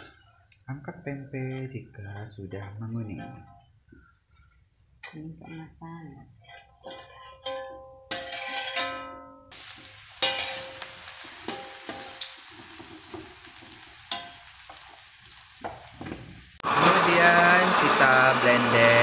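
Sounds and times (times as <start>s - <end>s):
metal spatula scraping a wok: 6.3s - 15.0s
food sizzling in hot oil: 9.5s - 19.0s
blender running: 16.6s - 19.0s.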